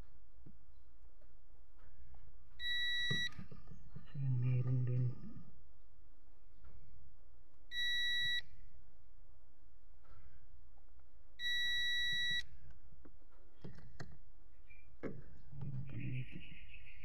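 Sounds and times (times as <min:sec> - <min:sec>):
multimeter continuity beeps: 0:02.6 - 0:03.4, 0:07.7 - 0:08.5, 0:11.4 - 0:12.4.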